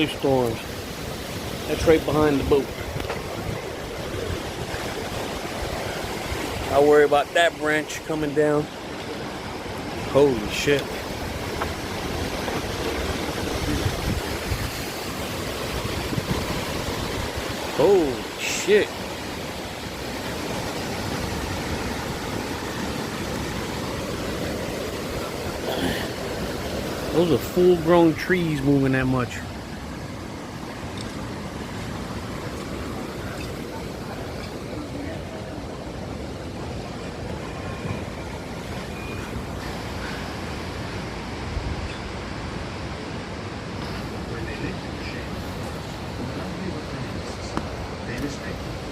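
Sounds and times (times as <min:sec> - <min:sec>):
wind rumbling on microphone: 0:00.0 - 0:06.7, 0:10.8 - 0:18.3
wind rushing through trees: 0:00.0 - 0:48.9.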